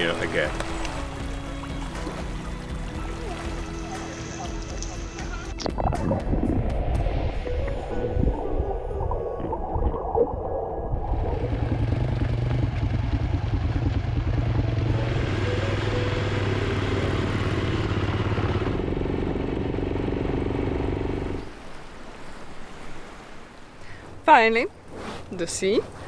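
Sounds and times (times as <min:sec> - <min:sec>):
road noise: 0:00.0 - 0:05.7, 0:11.2 - 0:26.0
motorcycle engine humming: 0:00.0 - 0:08.4, 0:11.1 - 0:26.0.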